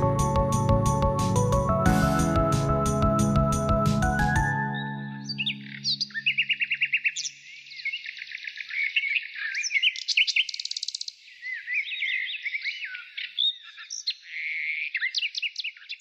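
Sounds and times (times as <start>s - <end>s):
songbirds chirping and trilling: 3.3s - 16.0s.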